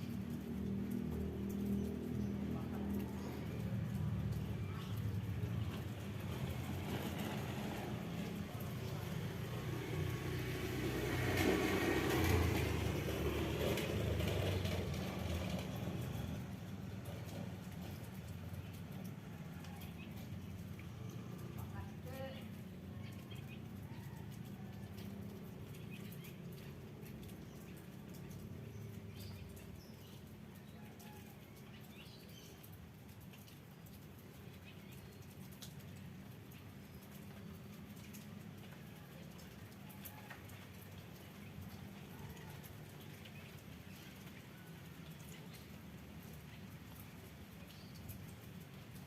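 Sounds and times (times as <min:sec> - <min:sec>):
small birds chirping: 0:00.0 - 0:07.4, 0:24.9 - 0:40.2, 0:40.9 - 0:48.9
vehicle engine passing by: 0:00.0 - 0:30.2.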